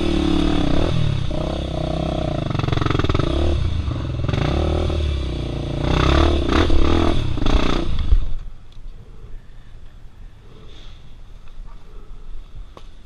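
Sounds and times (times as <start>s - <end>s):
dirt bike engine revving: 0.0s - 8.3s.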